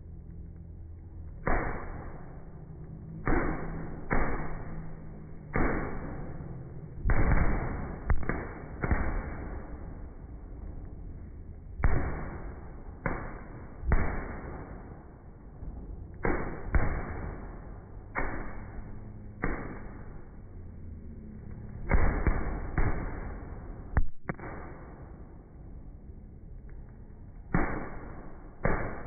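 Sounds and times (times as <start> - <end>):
fireworks bangs: 3.3 - 10.8, 15.9 - 20.4, 21.8 - 25.4, 27.6 - 29.0.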